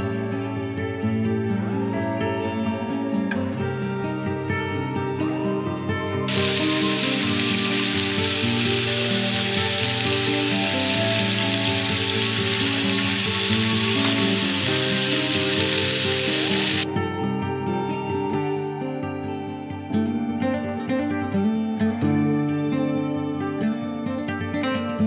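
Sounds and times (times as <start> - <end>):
background music: 0.0 - 24.5
shrimp sizzling in a pan: 6.3 - 16.8.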